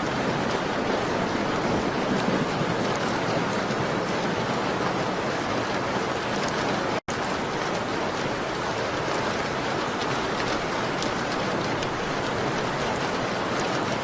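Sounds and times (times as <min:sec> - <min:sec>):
rain on a window: 0:00.0 - 0:14.0.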